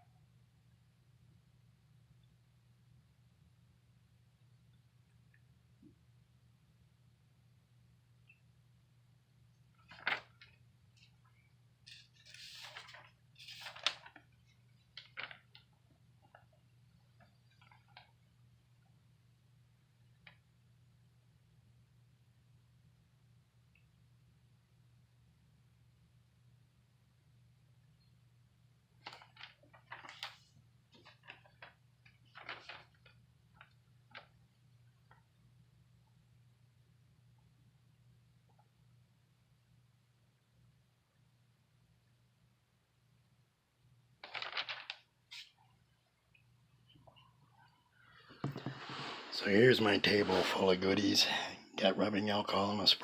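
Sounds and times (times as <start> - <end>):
faint low hum: 0.0 - 53.0
small objects clicking and rustling: 44.2 - 45.5.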